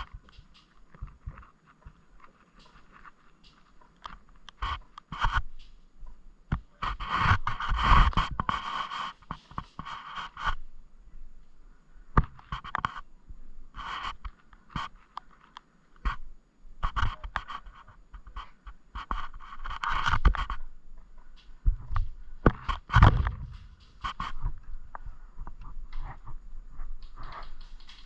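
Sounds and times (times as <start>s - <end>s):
rustling and scraping: 0.0s - 10.7s, 12.2s - 13.1s, 13.7s - 16.2s, 16.8s - 28.0s
sharp clicks and knocks: 16.8s - 28.0s.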